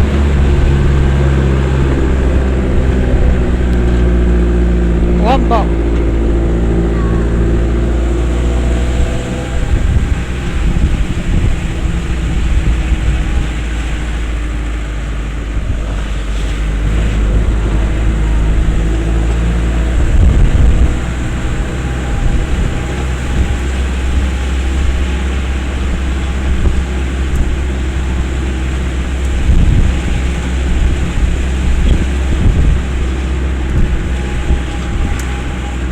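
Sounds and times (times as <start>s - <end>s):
vehicle engine and road rumble: 0.0s - 35.9s
vehicle jolts: 0.0s - 35.9s.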